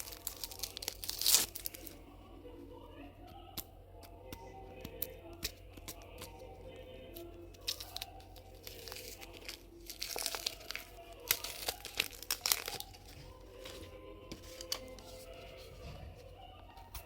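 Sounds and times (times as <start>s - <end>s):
crinkling and tearing: 0.0s - 2.0s, 7.2s - 15.9s.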